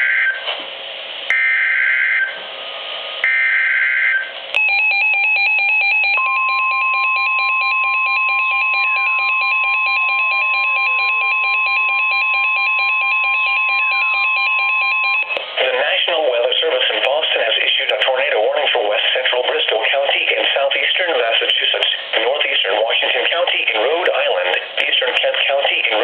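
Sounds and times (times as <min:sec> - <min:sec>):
steady warning alarm tone: 0:00.0 - 0:00.5, 0:01.3 - 0:02.4, 0:03.2 - 0:25.0
fast pulsing beep: 0:04.6 - 0:15.3.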